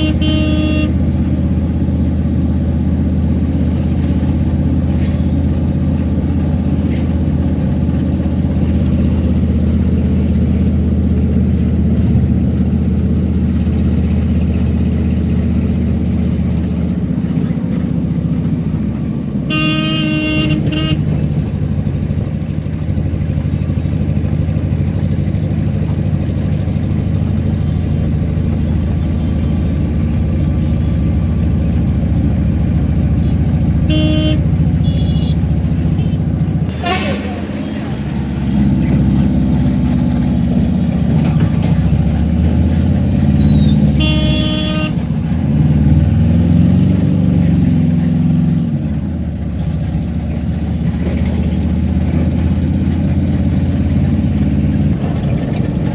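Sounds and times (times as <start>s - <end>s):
vehicle horn honking: 0.0s - 1.3s, 19.5s - 21.4s, 33.1s - 39.2s, 43.4s - 45.1s
car engine and road noise: 0.0s - 55.9s.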